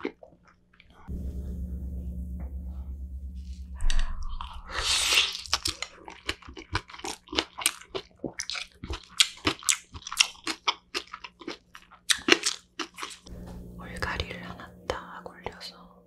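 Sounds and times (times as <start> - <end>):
crunchy chewing: 5.5 - 13.3.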